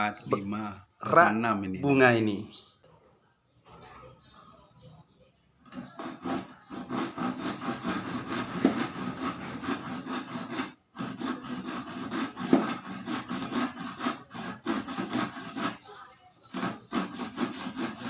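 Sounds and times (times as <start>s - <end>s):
hand saw cutting wood: 5.8s - 18.0s.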